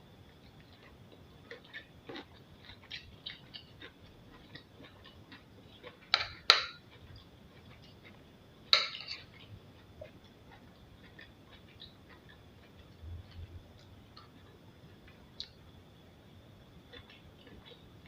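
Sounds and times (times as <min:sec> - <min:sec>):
person chewing with mouth clicks: 0:00.3 - 0:08.2, 0:09.2 - 0:15.6.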